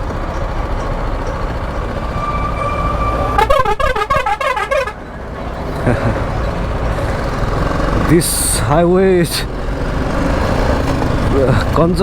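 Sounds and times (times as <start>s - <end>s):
road and engine noise: 0.0s - 12.0s
vehicle musical horn: 1.8s - 5.0s.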